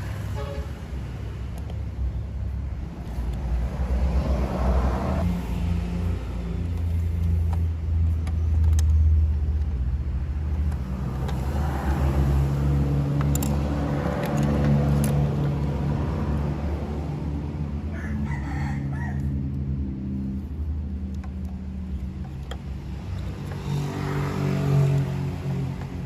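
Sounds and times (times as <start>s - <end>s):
vehicle engine humming: 0.0s - 26.0s
sharp clicks: 6.7s - 11.6s.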